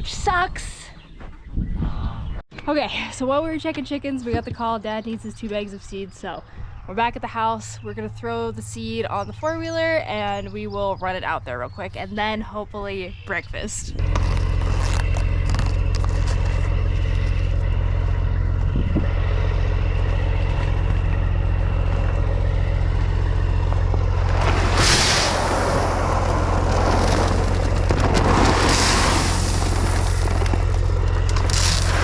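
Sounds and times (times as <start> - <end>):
atv engine running: 14.0 - 24.7, 29.6 - 32.0
loud rushing noise: 24.5 - 27.8.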